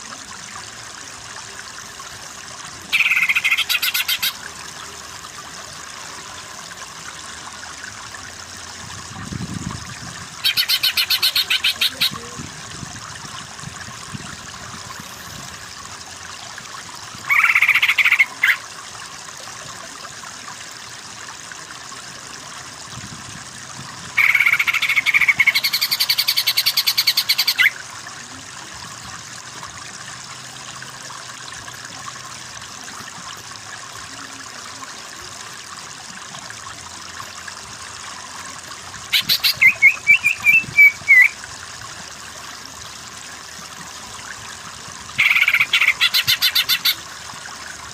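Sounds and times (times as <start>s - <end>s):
bird song with trills: 10.4s - 12.2s, 39.2s - 41.4s.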